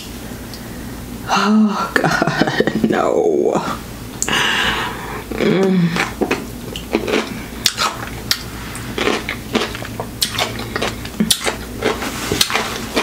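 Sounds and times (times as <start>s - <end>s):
crunchy chewing: 5.3s - 13.0s.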